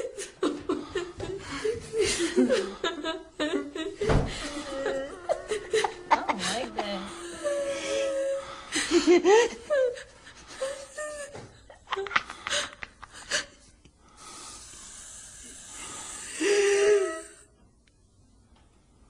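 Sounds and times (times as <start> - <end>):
person breathing with wheezing gasp: 12.2 - 17.6.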